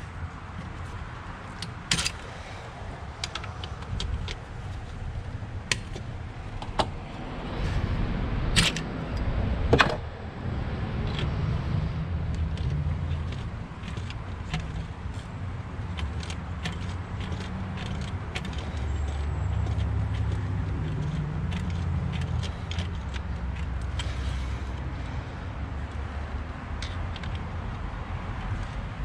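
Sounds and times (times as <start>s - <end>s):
steady low rumble: 0.0s - 18.8s
sharp clicks and knocks: 0.5s - 2.5s, 3.1s - 7.0s, 8.5s - 10.1s, 12.2s - 24.9s.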